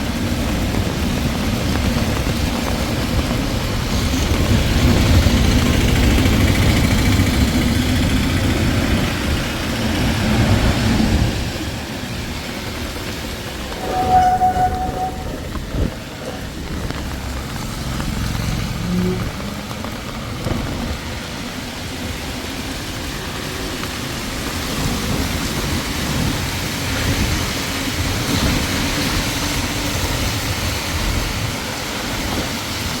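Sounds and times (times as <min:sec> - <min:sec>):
heavy rain: 0:00.0 - 0:13.8, 0:15.3 - 0:33.0
traffic on a wet road: 0:00.0 - 0:13.8, 0:15.4 - 0:33.0
steady high tone: 0:13.7 - 0:15.6
vehicle engine rumble: 0:14.4 - 0:23.7.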